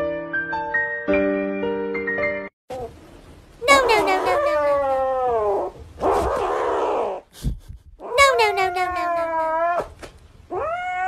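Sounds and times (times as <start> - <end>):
kitten crying and meowing: 3.6 - 5.7, 8.0 - 11.0.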